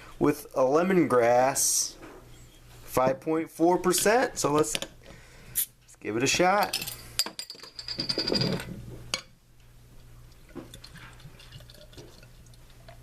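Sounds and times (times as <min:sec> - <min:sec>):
beer pouring into glass: 0:10.6 - 0:13.0.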